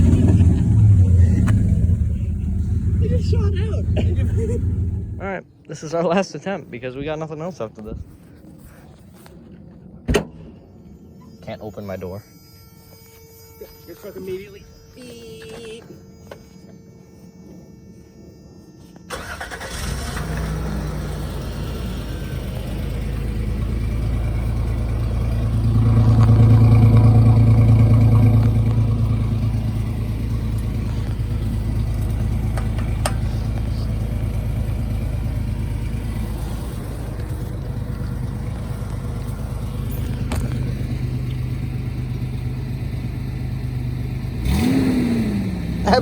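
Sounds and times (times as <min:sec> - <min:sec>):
truck engine idling: 0:00.0 - 0:05.4, 0:19.1 - 0:44.6.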